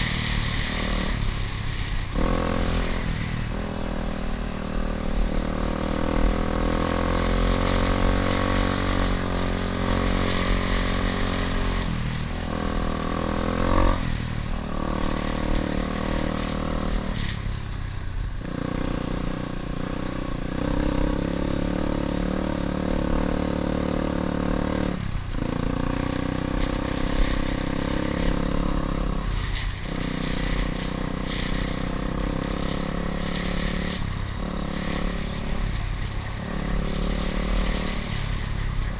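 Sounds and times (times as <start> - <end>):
dirt bike engine running: 18.4 - 38.9.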